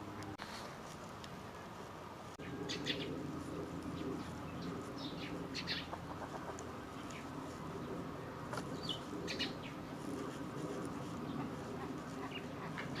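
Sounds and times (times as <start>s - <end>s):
coots calling: 11.0s - 13.0s.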